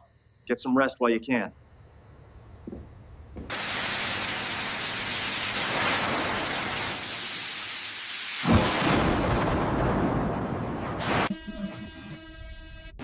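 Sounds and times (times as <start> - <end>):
faint low hum: 0.0 - 3.5
loud steady rushing hiss: 3.4 - 9.0.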